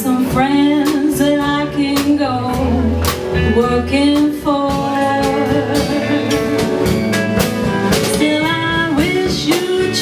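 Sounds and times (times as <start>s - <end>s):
drum kit beat: 0.0s - 10.0s
live band playing folk ballad: 0.0s - 10.0s
person singing: 4.7s - 7.2s.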